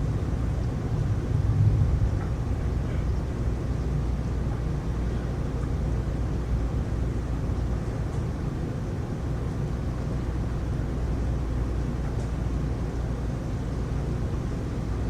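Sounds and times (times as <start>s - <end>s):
rainstorm low rumble: 0.0s - 8.7s.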